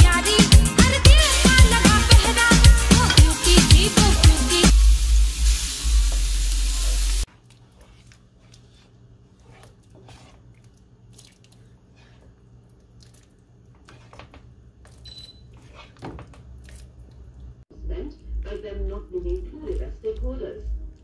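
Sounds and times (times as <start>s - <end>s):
chicken sizzling in hot oil: 1.2s - 7.3s.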